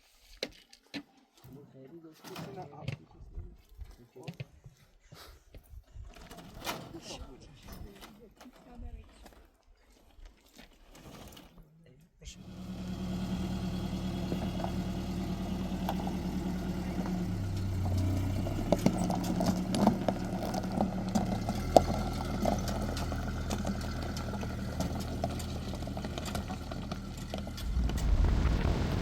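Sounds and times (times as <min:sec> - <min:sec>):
engine humming: 0:12.4 - 0:29.0
clattering and rattling: 0:17.1 - 0:29.0
wind rumble on microphone: 0:27.4 - 0:29.0.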